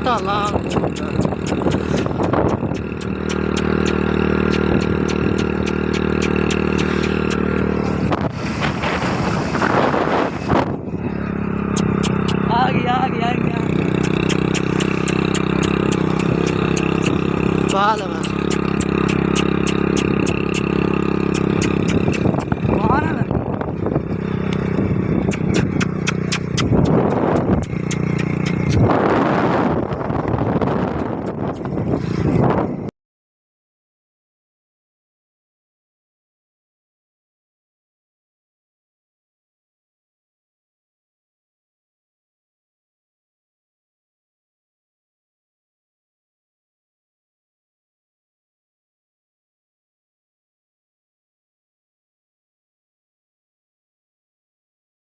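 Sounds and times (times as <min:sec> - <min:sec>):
fast even ticking: 0:00.0 - 0:08.1, 0:11.8 - 0:12.4, 0:14.0 - 0:20.7, 0:21.4 - 0:22.7, 0:25.3 - 0:28.8
rush of noise: 0:00.0 - 0:12.5
motorcycle engine running: 0:00.0 - 0:32.8
loud rushing noise: 0:06.4 - 0:10.6.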